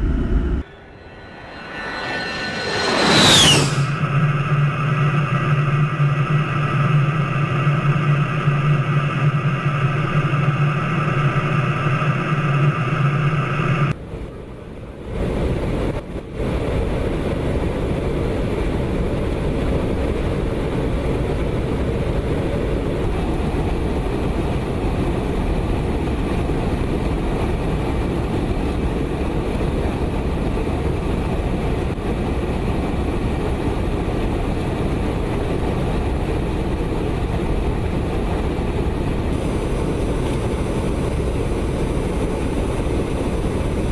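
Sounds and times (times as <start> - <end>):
steady even rumble: 0.0 - 9.3
jet engine drone and whine: 0.0 - 43.9.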